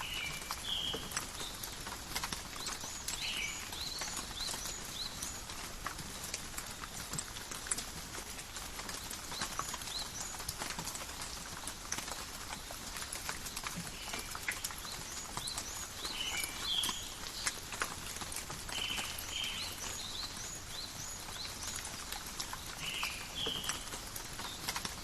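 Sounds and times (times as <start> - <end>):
rain falling in forest: 0.0 - 25.0
raindrops pattering: 0.0 - 25.0
bird chirps: 15.4 - 17.4.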